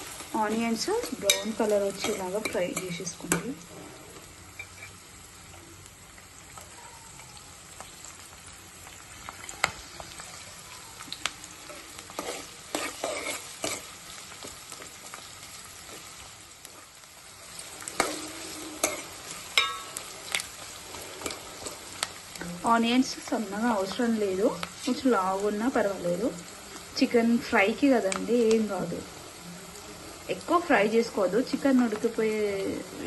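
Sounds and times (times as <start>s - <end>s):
onions sizzling in oil: 0.0s - 33.0s
spatula scraping pan: 11.7s - 13.9s, 17.8s - 22.1s.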